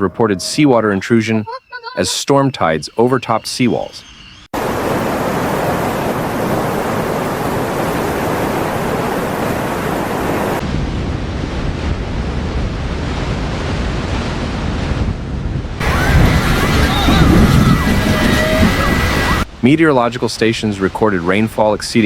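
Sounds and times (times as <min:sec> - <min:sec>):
wind and water rushing: 0:02.1 - 0:22.0
wind buffeting microphone: 0:04.0 - 0:19.5.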